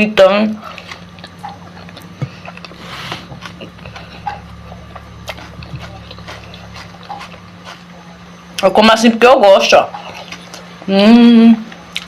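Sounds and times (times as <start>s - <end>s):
chewing and mouth smacks: 0.7s - 7.9s, 11.7s - 12.0s.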